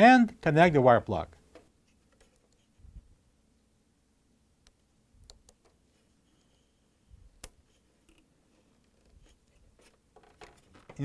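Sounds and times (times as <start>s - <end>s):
plastic parts clicking and knocking: 7.4s - 11.0s.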